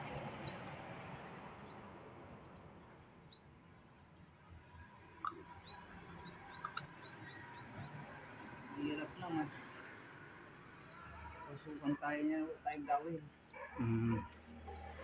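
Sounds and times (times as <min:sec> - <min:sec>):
small birds chirping: 0:01.6 - 0:08.2.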